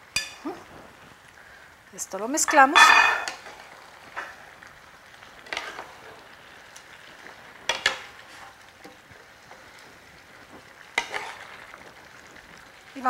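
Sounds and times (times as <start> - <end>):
food sizzling in a skillet: 0.0 - 13.0
spatula scraping a pan: 5.4 - 6.4, 7.2 - 11.9.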